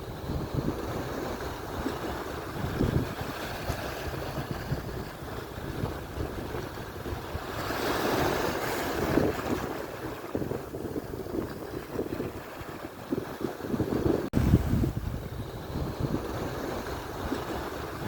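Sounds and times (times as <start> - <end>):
surf breaking on shore: 0.0 - 18.0
wind gusting on microphone: 0.0 - 18.0.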